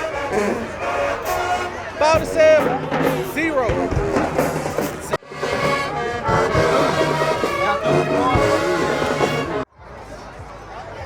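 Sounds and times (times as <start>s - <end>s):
brass band playing: 0.0s - 9.7s.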